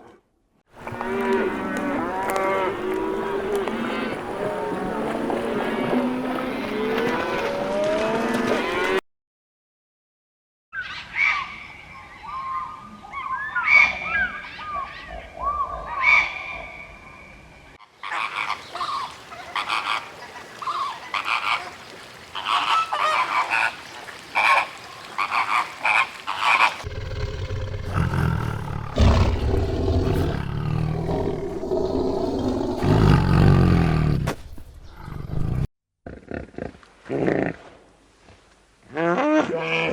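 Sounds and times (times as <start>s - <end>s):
animal calls: 25.2s - 34.0s.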